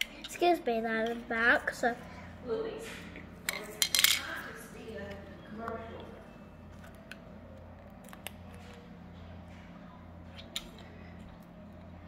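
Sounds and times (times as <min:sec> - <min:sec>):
low hum: 0:01.4 - 0:12.0.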